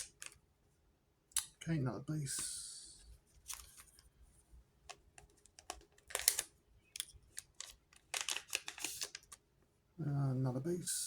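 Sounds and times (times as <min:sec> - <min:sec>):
trading cards being flipped: 0:05.6 - 0:09.4.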